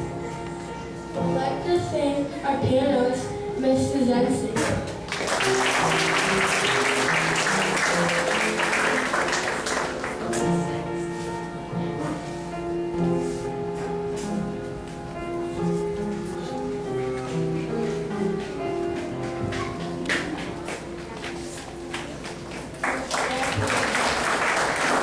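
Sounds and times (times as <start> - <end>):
piano music: 0.0 - 25.0
audience applauding: 5.1 - 10.4, 21.9 - 25.0.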